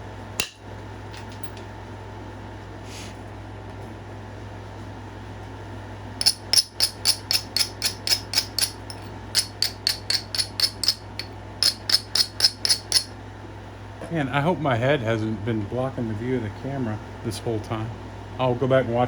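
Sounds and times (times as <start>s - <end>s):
knapping tool clicking on stone: 6.2s - 13.1s.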